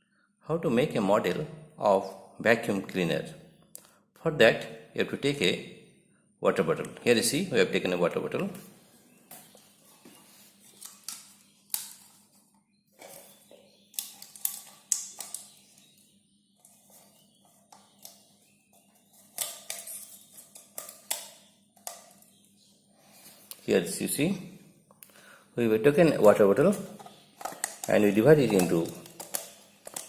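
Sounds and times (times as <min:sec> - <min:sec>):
plastic bottle clicks and crinkles: 0:13.0 - 0:16.0, 0:26.2 - 0:30.0.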